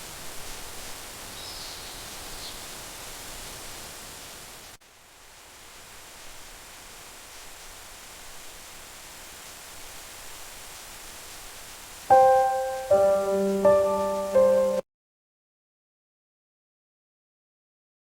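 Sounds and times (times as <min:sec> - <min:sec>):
steady soft hiss: 0:00.0 - 0:14.8
piano chords: 0:12.1 - 0:14.8.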